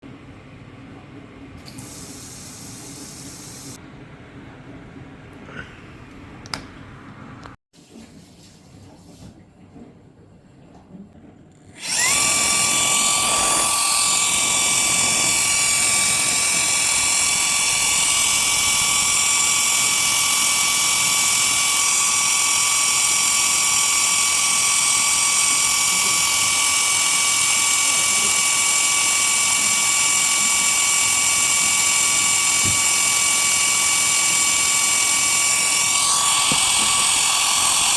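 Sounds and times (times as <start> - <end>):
electric motor whining: 11.8 - 37.9.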